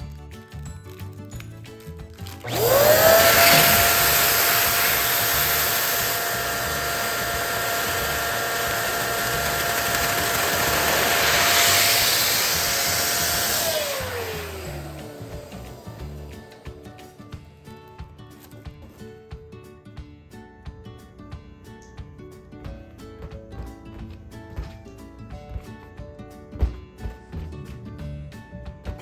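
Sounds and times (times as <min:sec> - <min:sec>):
electric balloon pump whining: 0:02.3 - 0:17.2.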